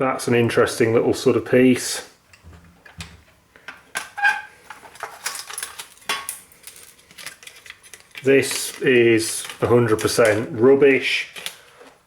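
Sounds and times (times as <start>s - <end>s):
small metal parts clattering: 4.0s - 10.4s.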